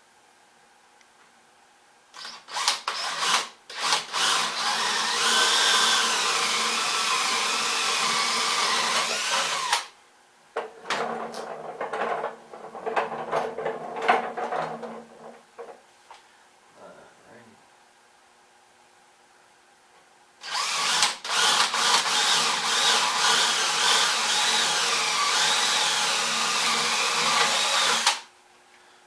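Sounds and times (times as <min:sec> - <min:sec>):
power drill boring into wood: 0:02.2 - 0:09.9, 0:20.4 - 0:28.3
knocks and scrapes: 0:10.6 - 0:15.8.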